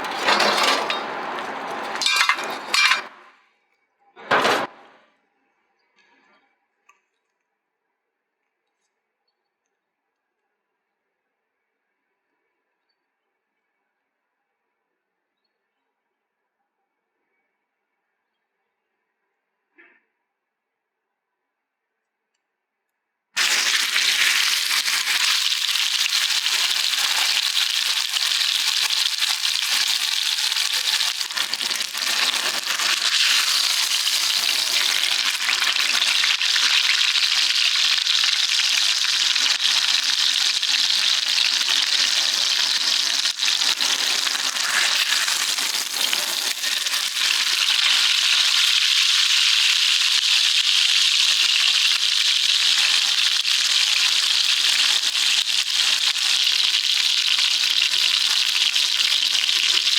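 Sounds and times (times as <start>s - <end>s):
fire crackling: 23.4s - 59.9s
steak sizzling: 23.4s - 59.9s.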